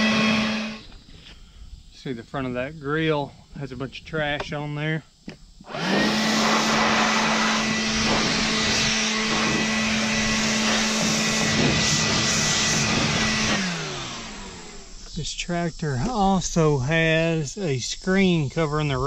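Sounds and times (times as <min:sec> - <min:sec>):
leaf blower running: 0:00.0 - 0:01.4, 0:05.6 - 0:15.1.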